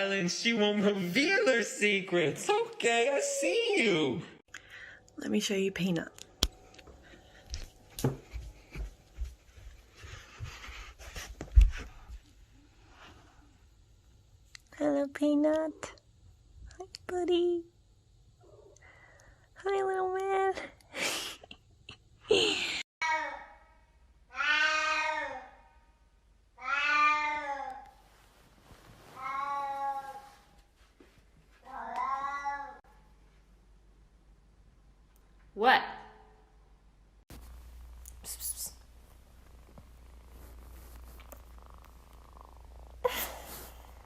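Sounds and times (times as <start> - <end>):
cat meowing: 26.6 - 27.8.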